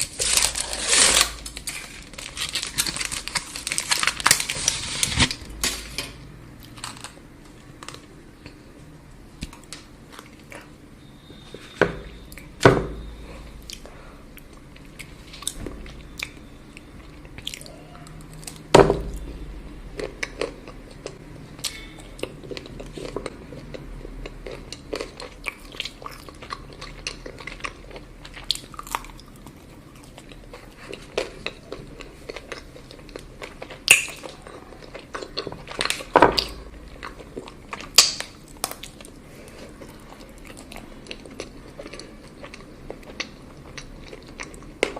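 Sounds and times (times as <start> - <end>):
chewing chocolate: 20.0 - 44.9.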